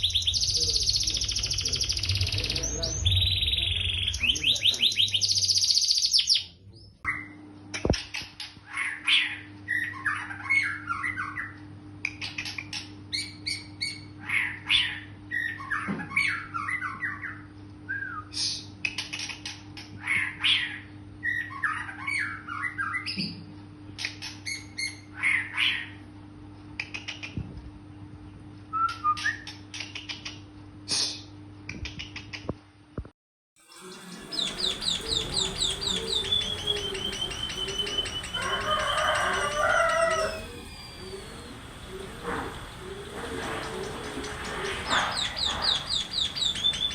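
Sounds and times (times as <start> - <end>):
bird whistling falling notes: 0.0 - 6.2, 33.7 - 46.9
bird harsh chattering calls: 0.0 - 6.4, 33.7 - 46.9
steady low hum: 0.0 - 8.7, 33.8 - 46.9.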